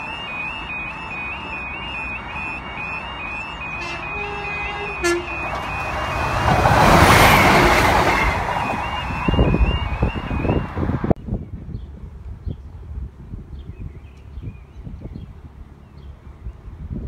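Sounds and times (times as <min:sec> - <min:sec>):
level crossing alarm two-tone yelp: 0:00.0 - 0:10.9
train rushing past: 0:02.2 - 0:11.1.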